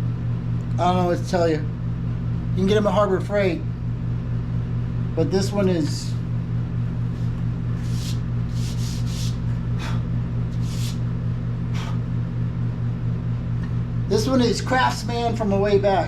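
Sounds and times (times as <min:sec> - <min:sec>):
low electrical hum: 0:00.0 - 0:16.0
scraping or rustling noises: 0:07.8 - 0:09.4.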